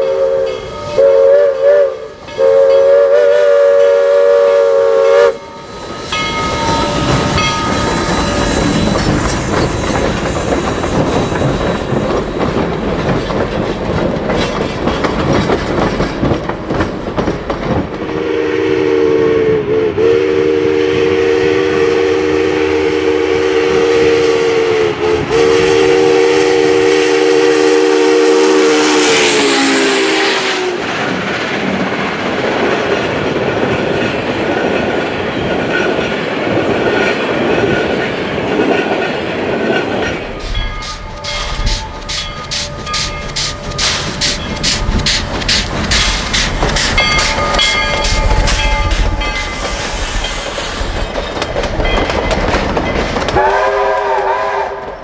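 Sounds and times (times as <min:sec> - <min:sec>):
locomotive multi-note chime horn: 0:00.0 - 0:09.2
steam locomotive chime whistle: 0:00.0 - 0:09.9, 0:18.1 - 0:30.8, 0:40.0 - 0:45.2, 0:46.8 - 0:50.6, 0:53.3 - 0:55.0
train rumbling past on rails: 0:00.0 - 0:55.0.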